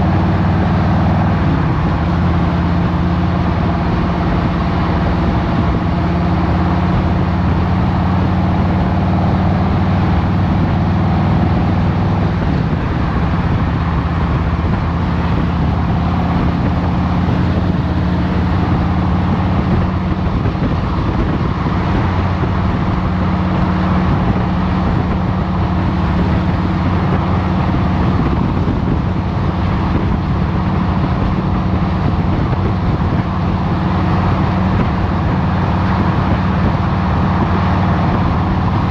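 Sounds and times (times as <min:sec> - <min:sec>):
motorcycle engine running steadily: 0:00.0 - 0:38.9.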